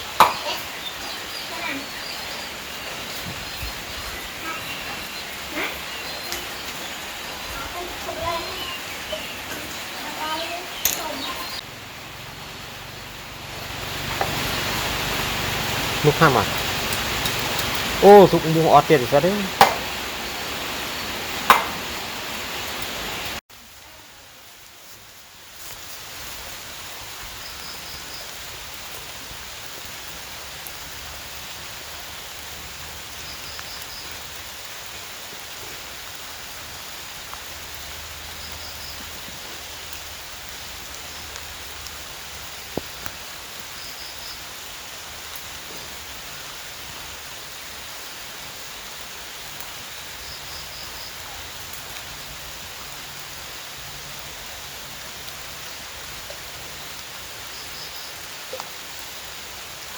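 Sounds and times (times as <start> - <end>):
heavy rain falling: 0.0 - 59.9
sharp knock: 19.6 - 19.9, 21.5 - 21.8.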